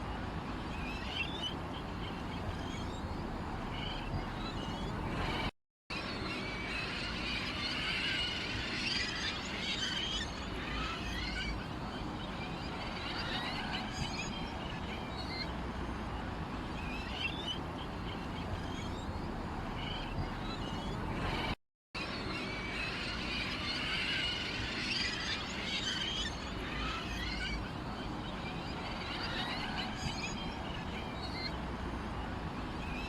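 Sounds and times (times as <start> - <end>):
small birds chirping: 0.7 - 5.5, 16.7 - 21.5.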